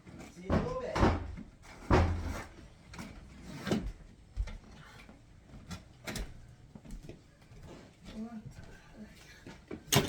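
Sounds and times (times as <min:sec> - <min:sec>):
knocks and clunks of hard objects: 0:00.5 - 0:02.5.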